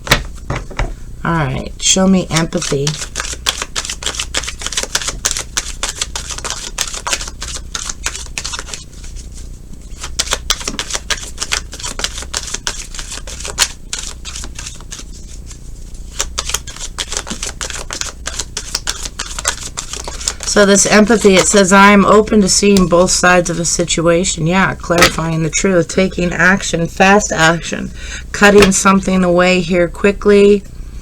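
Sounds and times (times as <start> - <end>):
cards being shuffled: 2.2 - 23.8.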